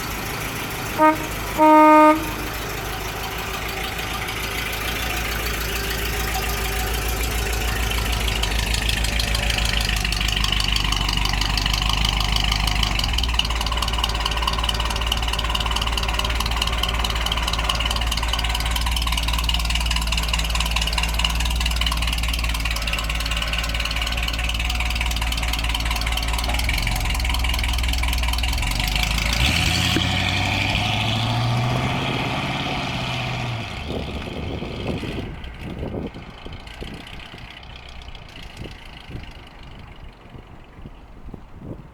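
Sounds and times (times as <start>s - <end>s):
car engine running: 0.0s - 41.9s.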